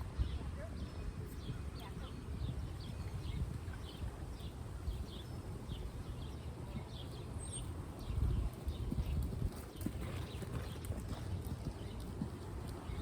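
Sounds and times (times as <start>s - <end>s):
bird chirping: 0.1s - 13.0s
horse hooves: 2.9s - 13.0s.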